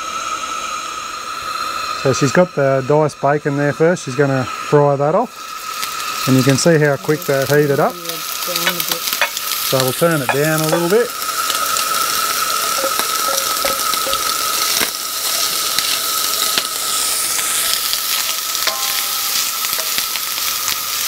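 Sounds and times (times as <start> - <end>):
bacon sizzling in a wok: 0.0 - 21.0
steady high tone: 12.8 - 14.3, 18.6 - 20.0
stirring: 12.8 - 14.9.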